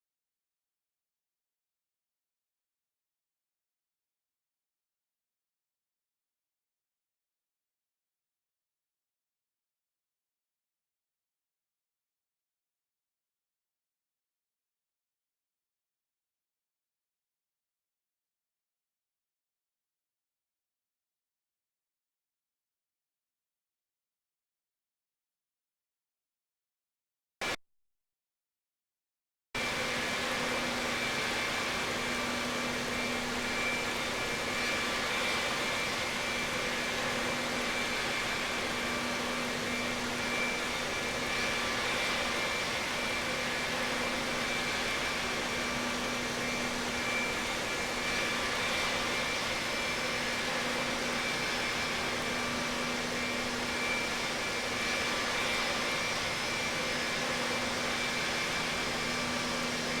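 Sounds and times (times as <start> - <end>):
jet engine drone and whine: 29.6 - 60.0.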